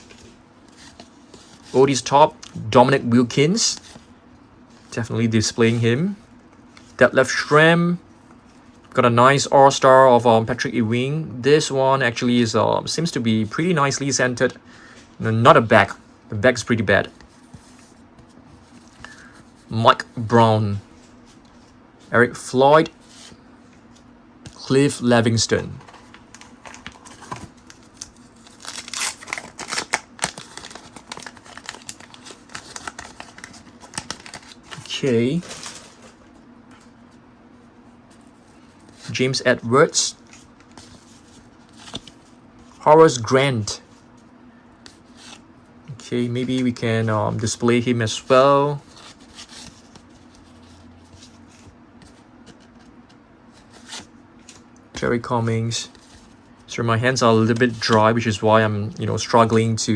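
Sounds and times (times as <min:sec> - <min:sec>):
cards sliding and rustling: 0:00.0 - 0:02.1, 0:22.8 - 0:36.9, 0:40.2 - 0:42.8, 0:48.2 - 0:55.1.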